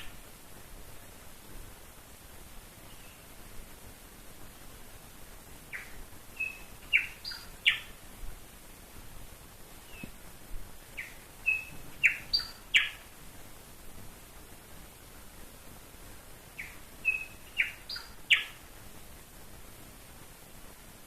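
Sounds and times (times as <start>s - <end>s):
bird singing: 5.7s - 8.0s, 11.0s - 13.1s, 16.6s - 18.6s.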